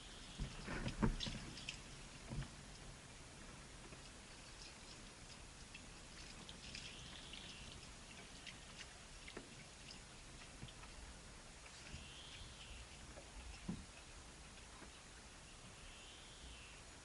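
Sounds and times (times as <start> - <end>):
faint scattered ticks: 3.8 - 15.0
faint high bird call: 11.8 - 13.0, 15.4 - 16.9.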